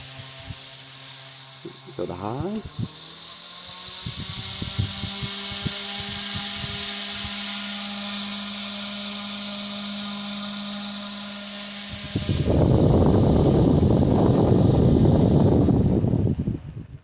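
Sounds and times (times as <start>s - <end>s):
electric fan motor hum: 0.0s - 17.0s
rush of air from fan blades: 0.0s - 17.0s.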